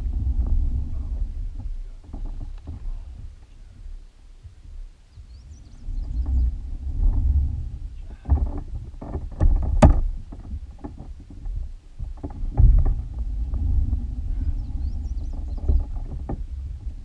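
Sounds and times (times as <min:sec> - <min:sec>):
steady low rumble: 0:00.0 - 0:17.0
knocks against kayak hull: 0:08.1 - 0:13.1.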